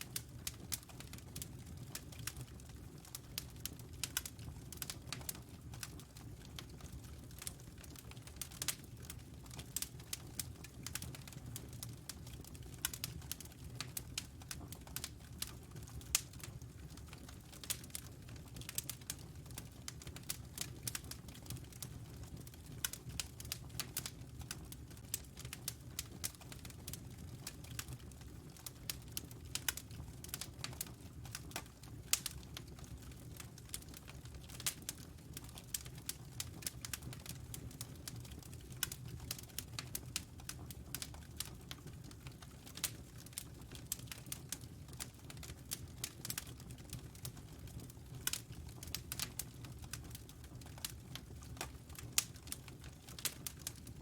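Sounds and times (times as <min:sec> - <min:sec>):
low rumble of flames: 0:00.0 - 0:54.0
wood fire crackling: 0:00.0 - 0:54.0.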